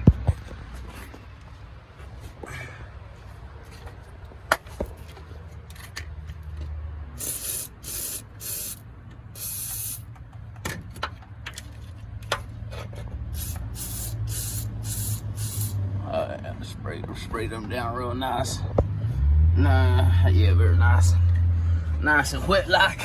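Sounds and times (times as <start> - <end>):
aerosol can spraying: 7.2 - 8.8, 9.4 - 10.0, 13.4 - 15.8.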